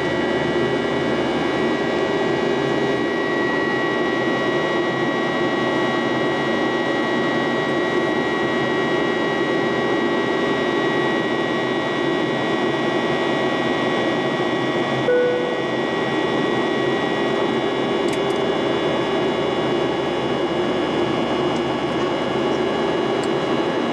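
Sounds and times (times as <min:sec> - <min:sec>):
airplane cabin engine drone: 0:00.0 - 0:23.9
single-note tone: 0:15.1 - 0:15.9.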